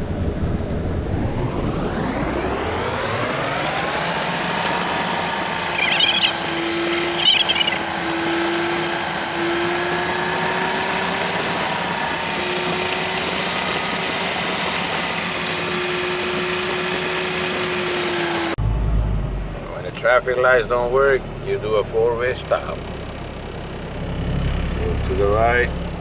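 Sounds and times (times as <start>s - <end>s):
truck engine and drivetrain whine: 0.9s - 26.0s
brief high-pitched rattles: 5.8s - 7.8s.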